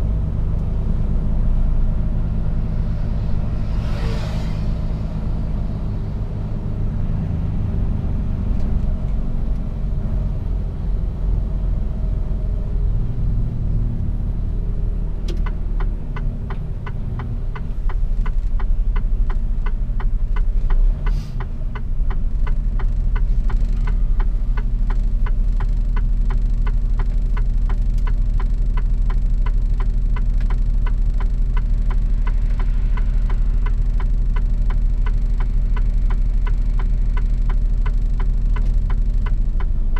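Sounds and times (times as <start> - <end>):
truck diesel engine rumbling: 0.0 - 39.9
turn signal ticking: 14.3 - 39.9.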